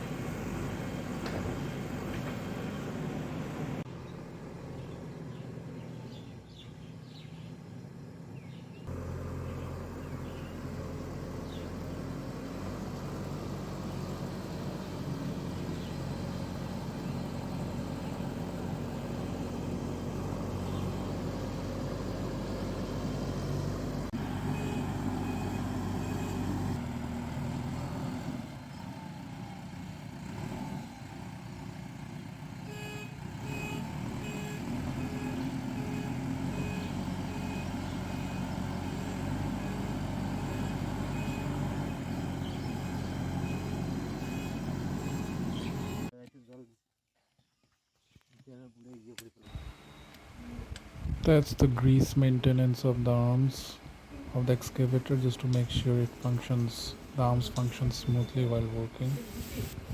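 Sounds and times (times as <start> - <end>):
excavator diesel engine working: 0.0 - 46.1, 49.5 - 59.9
reversing alarm beeping: 24.4 - 26.6, 33.6 - 46.1, 49.5 - 50.2.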